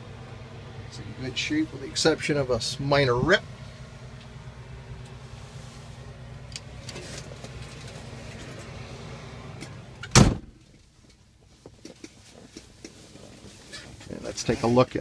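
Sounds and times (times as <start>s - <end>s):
low hum: 0.0s - 14.4s
truck door shutting thud: 10.0s - 10.6s.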